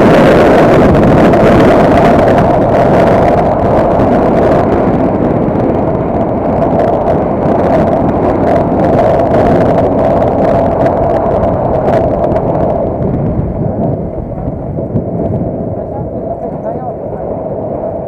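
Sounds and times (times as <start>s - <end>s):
vehicle running rumble: 0.0s - 18.0s
wind buffeting microphone: 0.0s - 18.0s.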